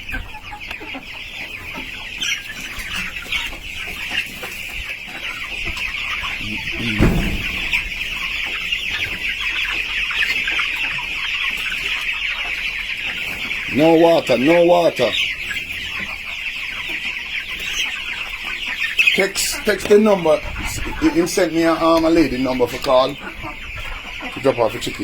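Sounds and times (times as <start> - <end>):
chickens cheeping and clucking: 0.0 - 25.0
thump: 6.7 - 8.1.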